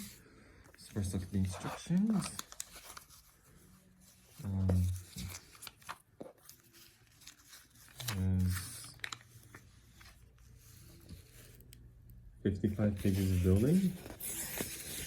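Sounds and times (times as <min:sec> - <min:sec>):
paper rustling and crinkling: 0:00.0 - 0:11.8, 0:12.7 - 0:15.0.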